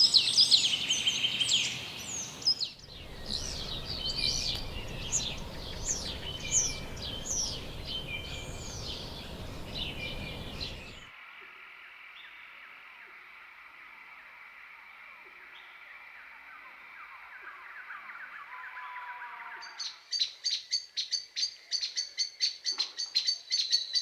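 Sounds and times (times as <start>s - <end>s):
birds chirping and whistling: 0.0s - 11.1s
background noise: 0.0s - 24.0s
faint high hum: 2.8s - 11.1s.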